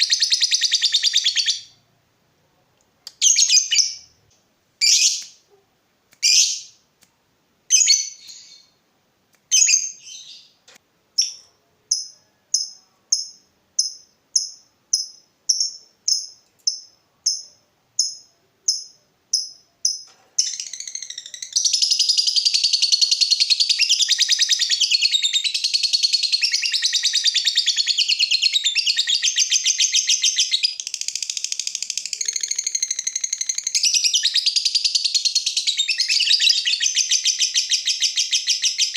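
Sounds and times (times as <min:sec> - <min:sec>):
lovebird chirping: 0:00.0 - 0:01.8, 0:03.1 - 0:05.6, 0:06.2 - 0:06.8, 0:07.7 - 0:08.8, 0:09.5 - 0:10.6, 0:11.2 - 0:38.9
bird chattering song: 0:04.8 - 0:05.4, 0:06.2 - 0:06.8, 0:11.2 - 0:38.9.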